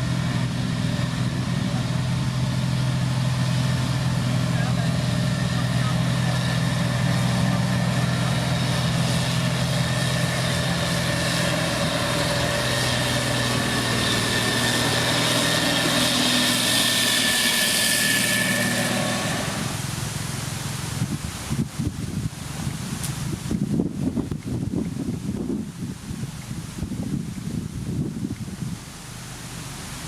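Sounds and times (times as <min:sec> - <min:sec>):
heavy diesel machinery droning: 0:00.0 - 0:21.4.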